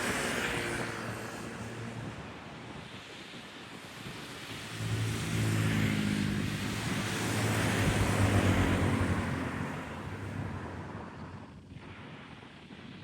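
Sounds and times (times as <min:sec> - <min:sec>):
aircraft passing by: 0:04.8 - 0:10.4.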